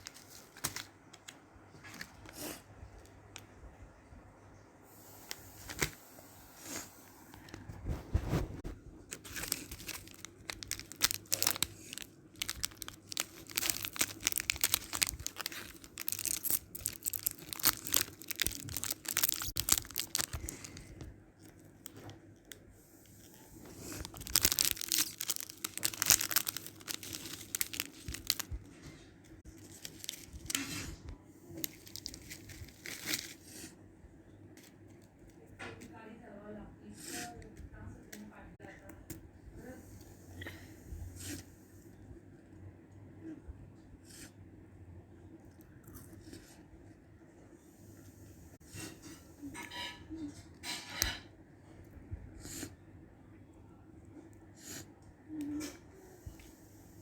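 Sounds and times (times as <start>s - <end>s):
snack packet crinkling: 9.1s - 22.6s, 23.3s - 28.8s, 29.4s - 30.8s, 31.6s - 33.4s.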